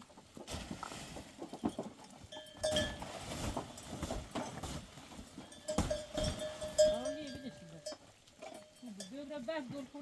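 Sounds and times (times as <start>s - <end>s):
livestock neck bells jangling: 1.5s - 10.0s.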